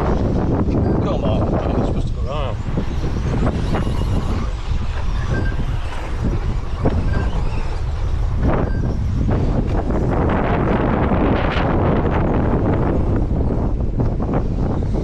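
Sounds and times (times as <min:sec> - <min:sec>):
wind buffeting microphone: 0:00.0 - 0:15.0
rc trucks racing past: 0:02.6 - 0:08.6.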